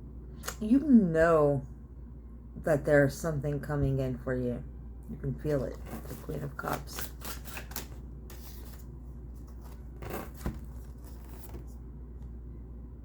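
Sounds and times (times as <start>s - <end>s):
steady low hum: 0.0s - 13.0s
cards sliding and flicking: 5.9s - 11.7s.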